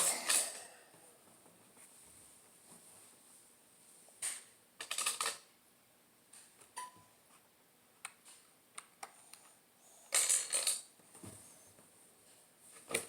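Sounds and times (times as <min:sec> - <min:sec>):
plastic pieces clicking: 0:04.2 - 0:05.5, 0:10.1 - 0:10.9
plastic pieces rattling: 0:04.8 - 0:05.5, 0:10.1 - 0:10.9.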